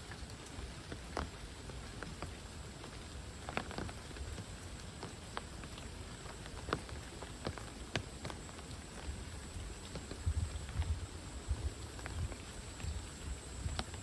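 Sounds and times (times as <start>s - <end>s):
large raindrops tapping: 0.0s - 14.0s
rain falling in forest: 0.0s - 14.0s.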